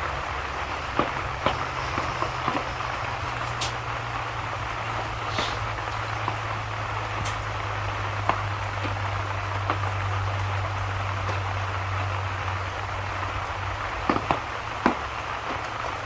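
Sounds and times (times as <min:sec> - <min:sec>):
sharp pops or drips: 0:00.0 - 0:16.0
steady rain falling: 0:00.0 - 0:16.0.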